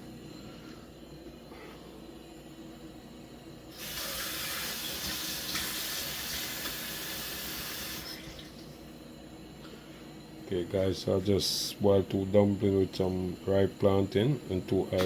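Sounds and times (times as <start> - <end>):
tap water running: 3.7 - 8.6.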